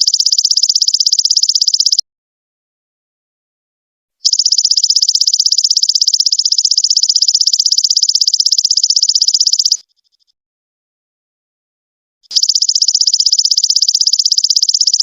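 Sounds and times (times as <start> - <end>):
insect trill: 0.0 - 2.0, 4.2 - 9.8, 12.3 - 15.0.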